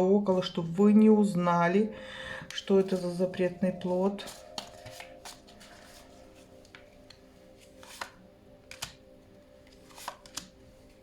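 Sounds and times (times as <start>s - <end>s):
faint background music: 0.0s - 11.0s
cards clicking on a table: 7.8s - 9.0s, 9.8s - 10.5s.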